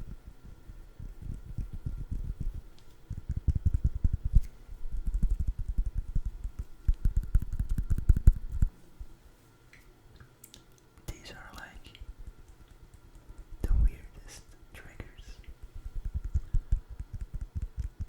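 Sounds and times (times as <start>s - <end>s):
rapid dull tapping on food: 0.7s - 4.4s, 5.0s - 8.7s, 11.6s - 13.7s, 15.4s - 18.0s.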